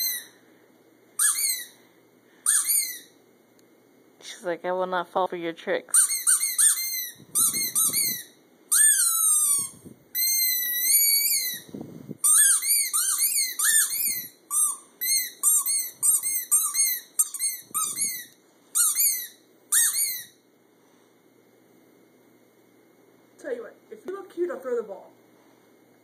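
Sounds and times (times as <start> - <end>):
squeaky dog toy squeaking: 0.0 - 0.4, 1.2 - 1.8, 2.4 - 3.2, 5.9 - 20.4.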